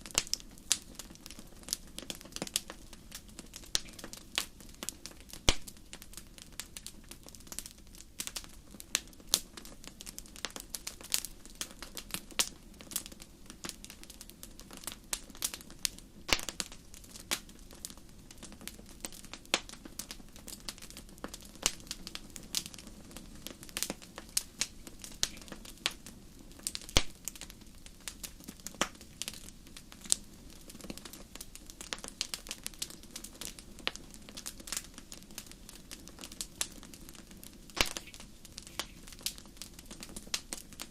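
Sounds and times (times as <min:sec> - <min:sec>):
low rush of flames: 0:00.0 - 0:40.9
wood fire crackling: 0:00.0 - 0:40.9
sharp pops and snaps: 0:03.6 - 0:06.2, 0:16.2 - 0:17.5, 0:23.4 - 0:26.0, 0:26.6 - 0:30.2, 0:36.1 - 0:40.9.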